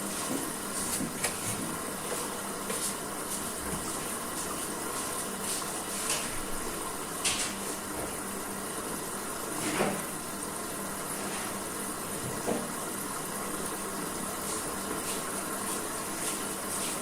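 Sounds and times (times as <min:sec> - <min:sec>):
washing machine churning water: 0:00.0 - 0:17.0.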